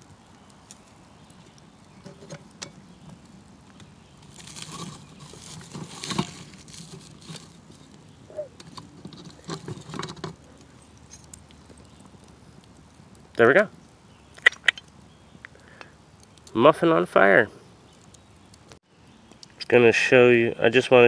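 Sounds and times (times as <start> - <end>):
pan scraping and rustling: 2.0 - 2.8, 4.2 - 11.3.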